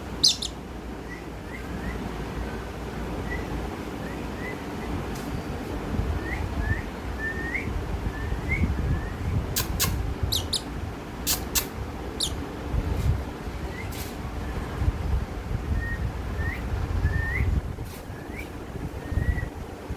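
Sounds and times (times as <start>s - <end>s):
parrot calling: 0.0s - 1.7s, 9.5s - 12.4s.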